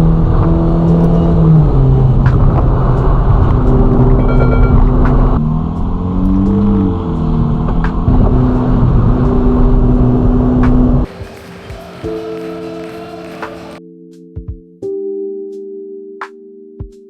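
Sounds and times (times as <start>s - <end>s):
car engine running loud: 0.0s - 11.1s
music bed: 0.0s - 17.0s
synthesizer tones: 3.2s - 5.4s.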